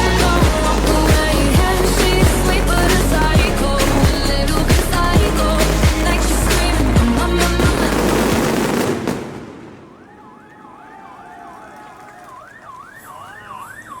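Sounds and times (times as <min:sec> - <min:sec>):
loud music: 0:00.0 - 0:08.8
siren warbling: 0:09.7 - 0:14.0.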